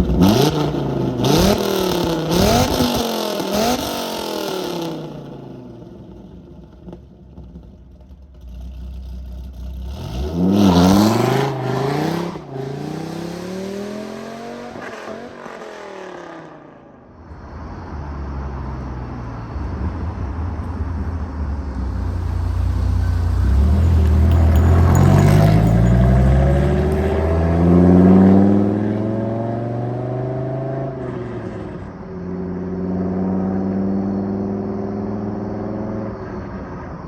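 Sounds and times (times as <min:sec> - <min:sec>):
sports car engine revving: 0:00.0 - 0:05.4, 0:08.3 - 0:16.8.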